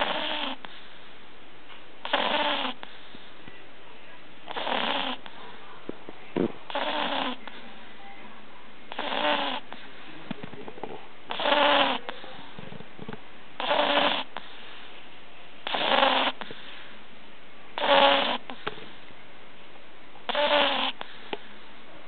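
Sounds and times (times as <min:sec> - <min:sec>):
puppy snoring: 0:00.0 - 0:01.1, 0:02.0 - 0:03.3, 0:04.5 - 0:05.6, 0:06.4 - 0:07.8, 0:08.9 - 0:10.0, 0:10.6 - 0:12.8, 0:13.6 - 0:14.9, 0:15.6 - 0:16.9, 0:17.8 - 0:19.0, 0:20.3 - 0:21.7.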